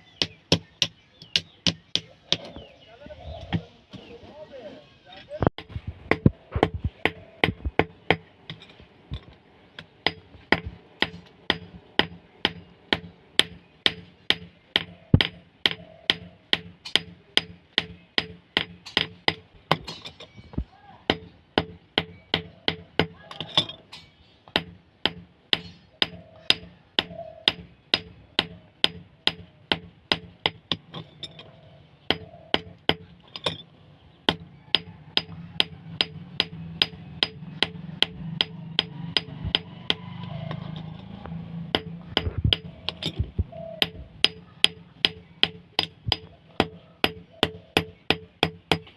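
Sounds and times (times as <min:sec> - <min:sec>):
hammer striking steel: 0:34.3 - 0:40.0, 0:41.7 - 0:48.9.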